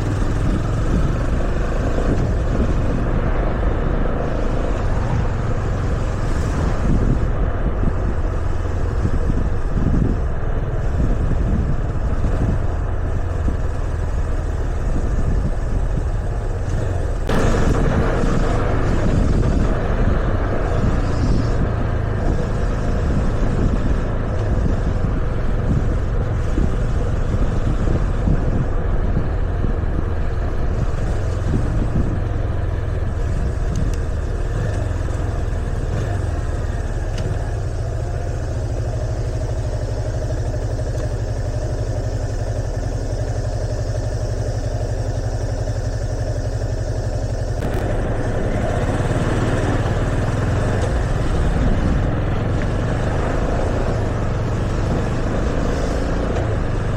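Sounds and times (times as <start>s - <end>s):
motorcycle engine running: 0.0s - 56.9s
wind noise: 0.0s - 56.9s.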